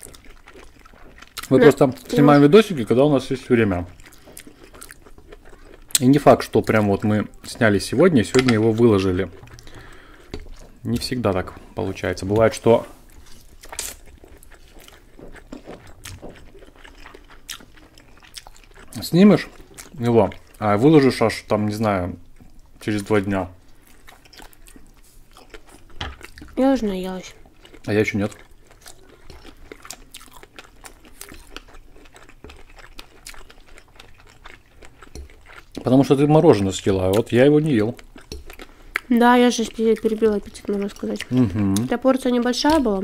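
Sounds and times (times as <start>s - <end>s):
wet chewing: 0.0s - 43.0s
chewing mouth clicks and smacks: 27.6s - 35.9s, 38.0s - 39.1s.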